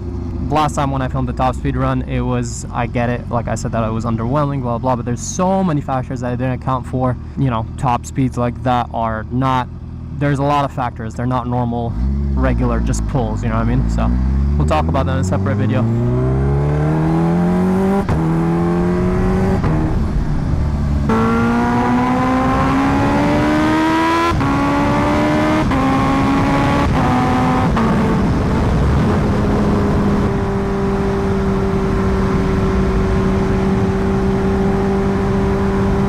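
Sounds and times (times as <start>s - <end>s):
motorcycle engine accelerating: 11.5s - 36.0s
wind rush on microphone: 24.3s - 36.0s.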